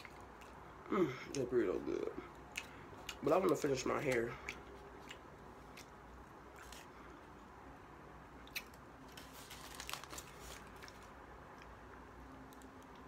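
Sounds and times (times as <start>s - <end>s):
person chewing food: 0.0s - 7.5s, 8.4s - 9.4s.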